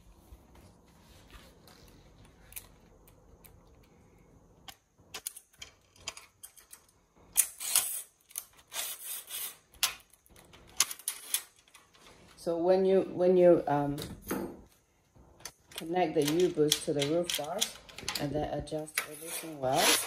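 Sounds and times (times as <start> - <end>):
metal hardware clicking and rattling: 5.1 - 7.0, 15.4 - 18.4.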